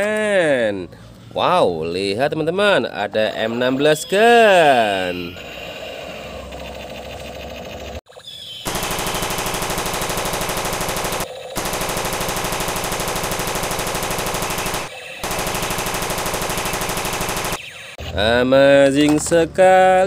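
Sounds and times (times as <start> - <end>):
toy gun machine-gun sound effect: 5.1 - 8.0, 8.6 - 18.1.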